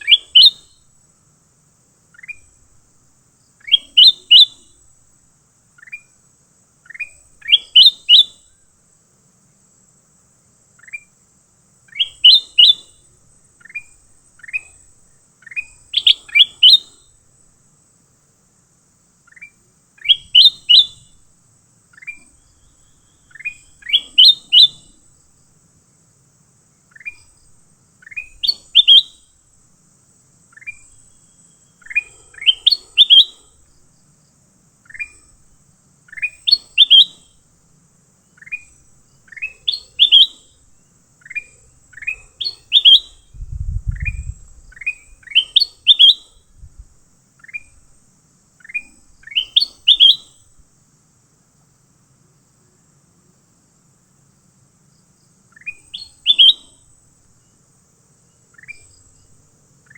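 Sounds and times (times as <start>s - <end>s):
bird chirping: 0.0s - 0.9s, 2.1s - 2.8s, 3.5s - 4.9s, 5.7s - 6.2s, 6.8s - 8.5s, 10.7s - 11.2s, 11.8s - 17.2s, 19.2s - 21.3s, 21.9s - 25.5s, 26.8s - 29.4s, 30.4s - 37.4s, 38.2s - 46.8s, 47.4s - 47.9s, 48.6s - 50.6s, 55.4s - 57.6s, 58.2s - 59.9s.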